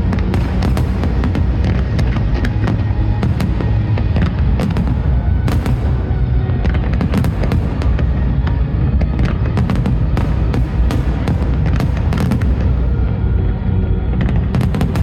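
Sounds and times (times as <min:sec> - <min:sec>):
fireworks booms and cracks: 0:00.0 - 0:15.0
music: 0:00.0 - 0:15.0.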